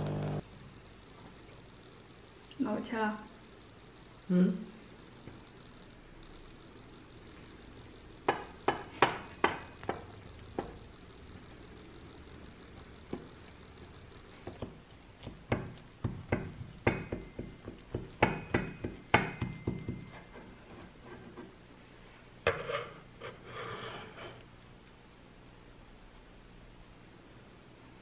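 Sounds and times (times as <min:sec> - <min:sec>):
kitchenware knocking and clinking: 0:15.6 - 0:20.1.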